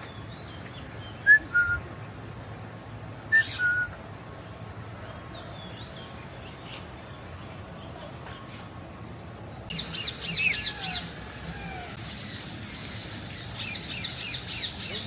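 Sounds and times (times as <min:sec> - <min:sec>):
high bird twittering: 0:03.4 - 0:03.9, 0:09.7 - 0:15.0.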